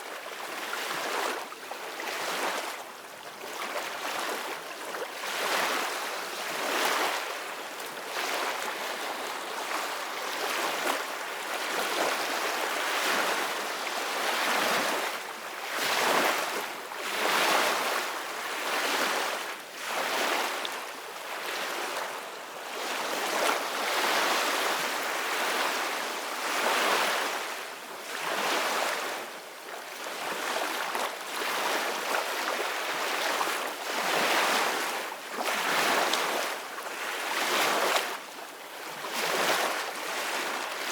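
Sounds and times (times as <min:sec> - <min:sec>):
ocean waves breaking on shore: 0:38.9 - 0:40.9.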